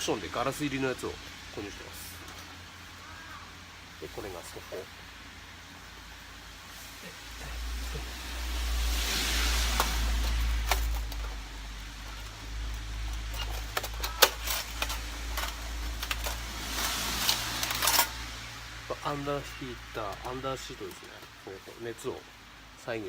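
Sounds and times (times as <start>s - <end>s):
rushing noise: 0.0s - 22.8s
metal panels clicking and tapping: 9.6s - 18.3s.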